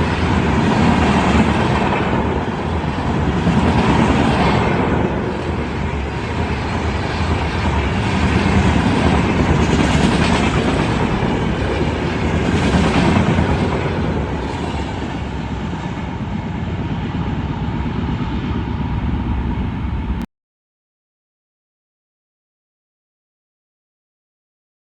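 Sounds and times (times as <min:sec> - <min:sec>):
passenger train passing at speed: 0:00.0 - 0:20.3.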